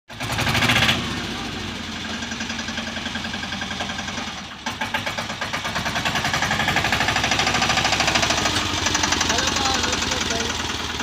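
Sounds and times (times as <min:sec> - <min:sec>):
mini tractor engine running: 0:00.1 - 0:11.0.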